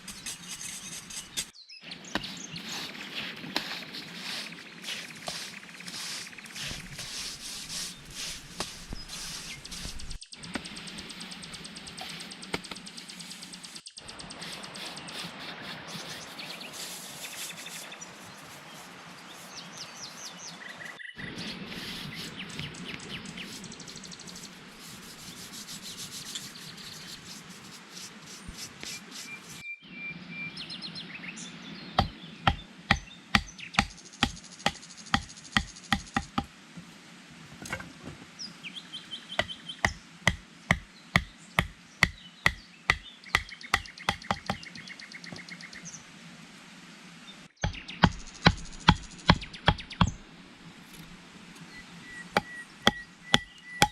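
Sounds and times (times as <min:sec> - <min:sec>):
rubbing and scraping: 0:00.0 - 0:10.2, 0:14.4 - 0:19.8, 0:21.4 - 0:29.6, 0:52.4 - 0:53.9
birds chirping: 0:00.0 - 0:36.5, 0:38.3 - 0:46.1, 0:47.3 - 0:53.9
tool striking: 0:39.4 - 0:44.6, 0:52.4 - 0:53.9.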